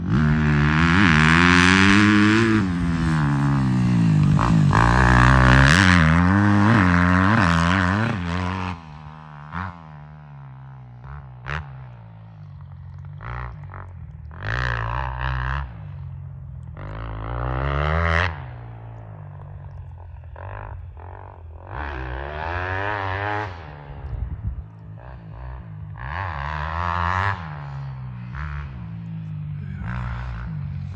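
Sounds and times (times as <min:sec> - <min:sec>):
dirt bike engine revving: 0:00.0 - 0:10.1, 0:16.8 - 0:19.2, 0:20.3 - 0:30.9.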